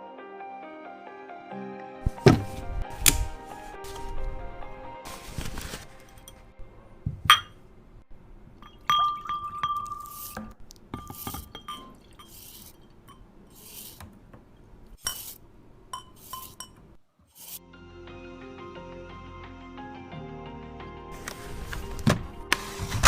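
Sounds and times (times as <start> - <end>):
glass and ceramic clinking: 7.1 - 7.6, 8.6 - 13.6, 14.2 - 17.0
short brushing noises: 17.3 - 17.6.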